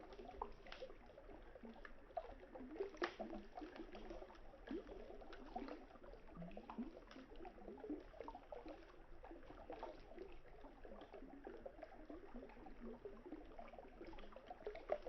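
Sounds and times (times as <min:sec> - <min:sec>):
campfire crackling and popping: 0:03.0 - 0:03.3.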